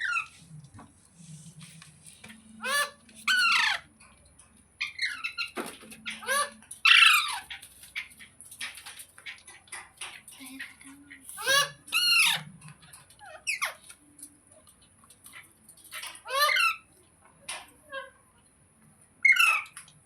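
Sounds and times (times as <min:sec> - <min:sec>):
parrot harsh calls: 0:00.0 - 0:00.3, 0:02.6 - 0:03.9, 0:04.8 - 0:07.6, 0:11.4 - 0:12.4, 0:15.9 - 0:16.9, 0:19.2 - 0:19.8
parrot chattering: 0:00.0 - 0:00.4, 0:02.5 - 0:03.9, 0:10.5 - 0:12.6, 0:15.9 - 0:16.9.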